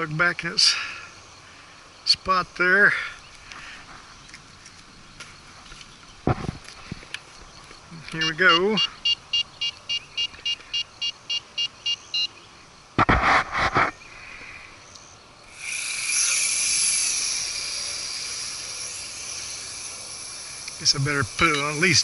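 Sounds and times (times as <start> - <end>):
small motors whirring: 15.4 - 22.0
short high electronic beeps: 21.4 - 22.0.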